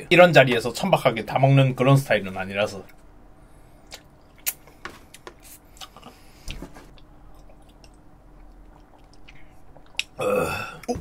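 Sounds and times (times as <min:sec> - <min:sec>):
wet mouth chewing: 0:06.9 - 0:10.2.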